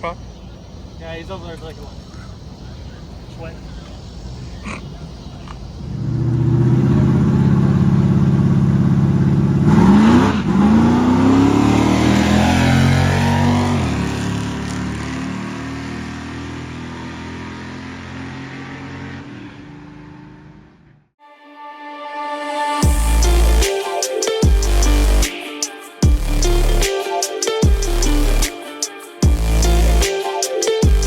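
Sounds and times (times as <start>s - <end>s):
car engine revving and accelerating: 5.8s - 20.8s.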